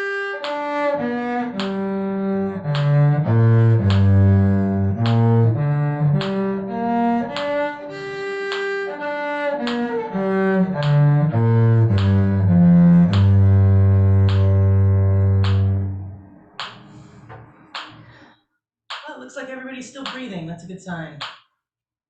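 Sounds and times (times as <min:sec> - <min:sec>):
cello bowing a scale: 0:00.0 - 0:16.3.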